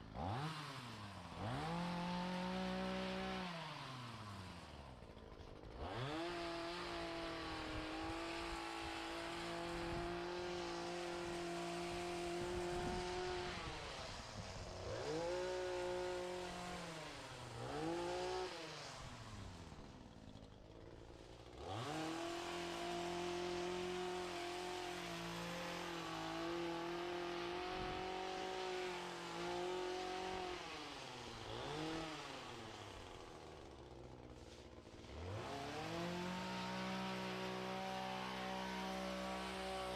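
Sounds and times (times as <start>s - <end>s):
small lawn equipment engine revving: 0.0s - 39.9s.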